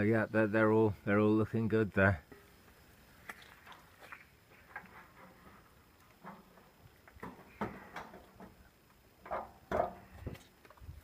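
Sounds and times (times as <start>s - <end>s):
hens pecking and scratching: 2.6s - 11.0s.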